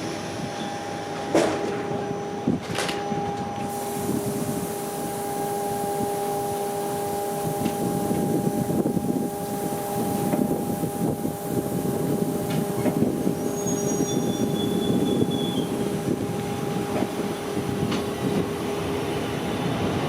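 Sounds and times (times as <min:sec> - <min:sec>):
train wheels rumbling: 0:00.0 - 0:20.0
train clunk: 0:01.2 - 0:03.8, 0:07.4 - 0:09.0, 0:10.0 - 0:10.6, 0:12.1 - 0:18.6.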